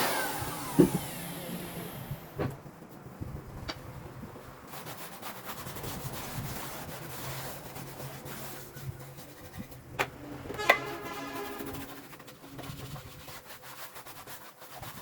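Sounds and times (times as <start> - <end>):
scraping on a hard surface: 4.8 - 15.0.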